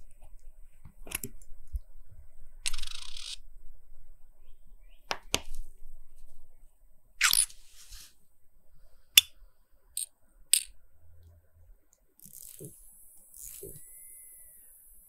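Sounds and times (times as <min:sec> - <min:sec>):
faint hiss: 0:07.5 - 0:09.8
small tools clicking: 0:10.0 - 0:10.7.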